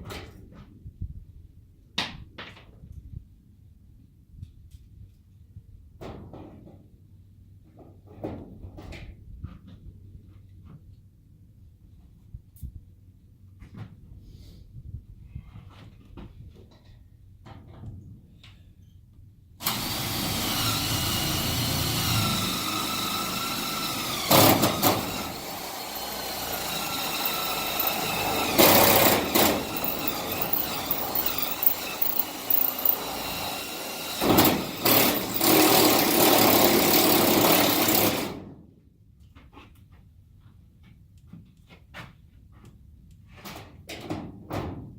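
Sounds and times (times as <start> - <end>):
power drill whining: 19.6 - 38.4.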